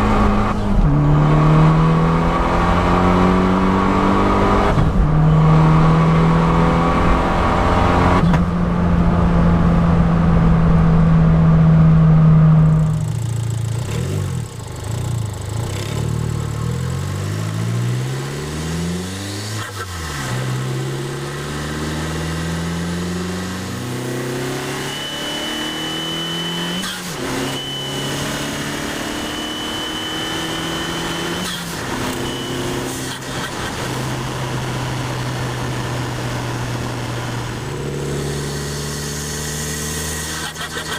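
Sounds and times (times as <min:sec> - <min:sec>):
car engine revving: 0:00.0 - 0:40.9
high turbo whistle: 0:24.6 - 0:28.4, 0:29.1 - 0:32.9.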